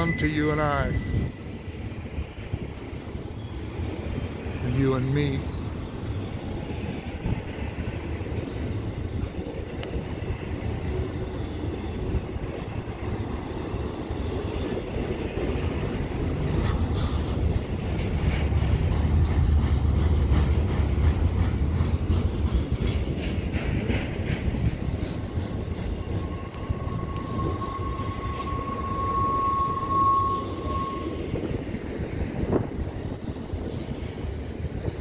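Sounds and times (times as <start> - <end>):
high-pitched squeal: 0.0 - 2.3, 25.6 - 31.8
freight train rumbling past: 0.0 - 35.0
train wheel clicks: 8.4 - 11.2, 12.0 - 29.1.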